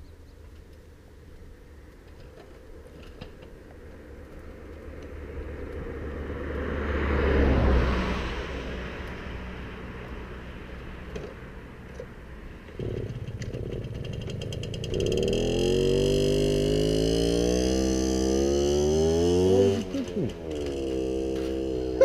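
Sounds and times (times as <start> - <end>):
small motorbike engine running: 12.8 - 22.0.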